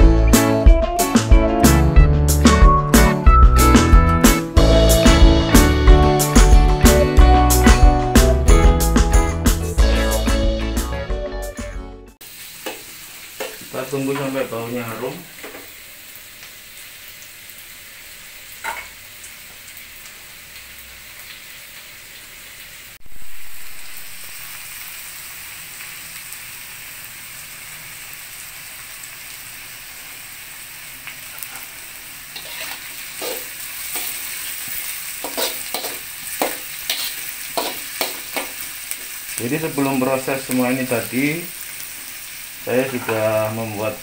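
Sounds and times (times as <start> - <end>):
garlic and onion sizzling in oil: 12.2 - 44.0
metal spatula scraping a wok: 32.3 - 34.5, 35.1 - 38.5.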